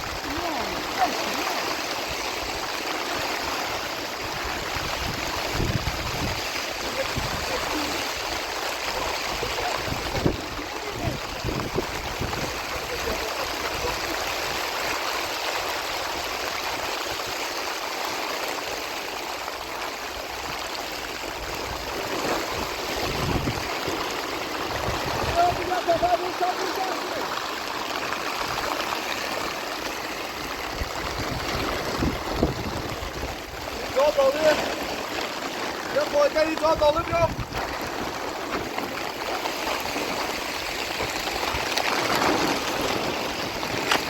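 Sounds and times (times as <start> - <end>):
heavy rain: 0.0 - 44.0.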